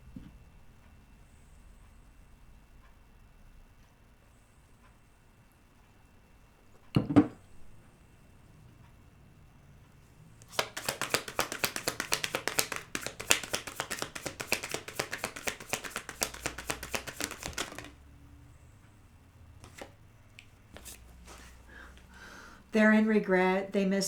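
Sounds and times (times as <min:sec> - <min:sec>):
cards being shuffled: 0:10.4 - 0:18.0, 0:19.6 - 0:20.0, 0:20.7 - 0:21.6.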